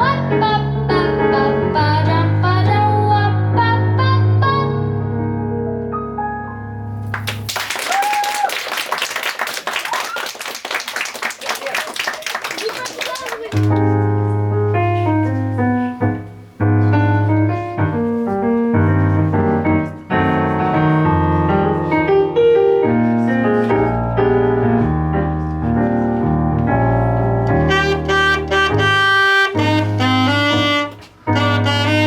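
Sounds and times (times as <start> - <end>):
piano: 0.0 - 32.0
saxophone melody: 27.4 - 32.0.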